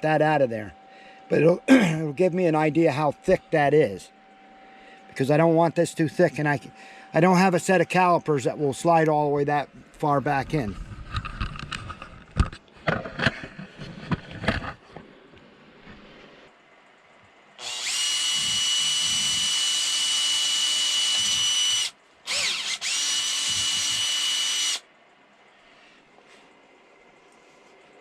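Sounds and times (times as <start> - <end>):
power drill whining: 17.6 - 24.8.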